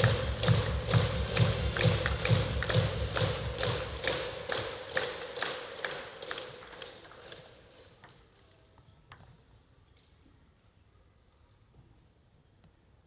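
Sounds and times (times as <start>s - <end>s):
crowd clapping in unison: 0.0s - 7.9s.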